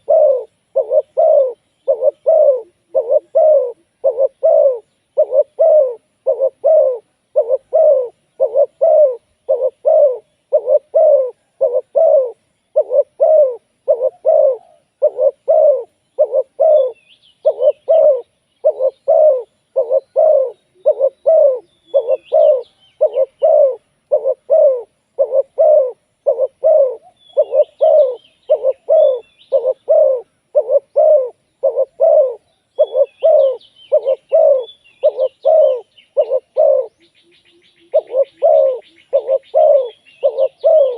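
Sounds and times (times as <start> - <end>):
dove cooing: 0.0 - 40.9
faint high bird chirps: 0.0 - 40.9.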